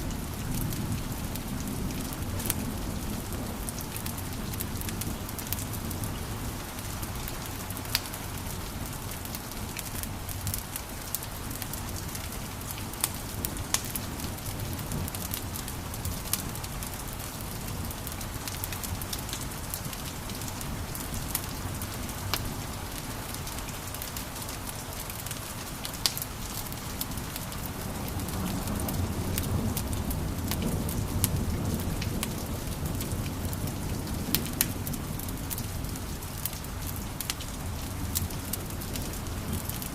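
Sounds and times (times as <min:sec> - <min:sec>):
wood fire crackling: 0:00.0 - 0:39.9
sharp pops and snaps of fire: 0:09.1 - 0:28.6.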